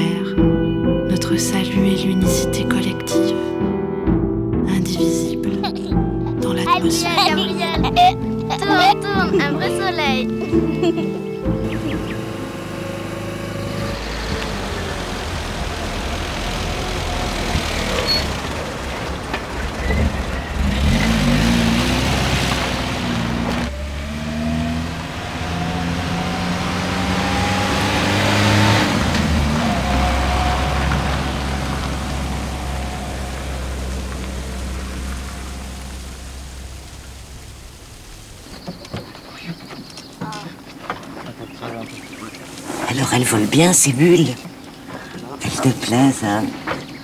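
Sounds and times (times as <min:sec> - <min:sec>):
car engine running: 0:11.4 - 0:47.0.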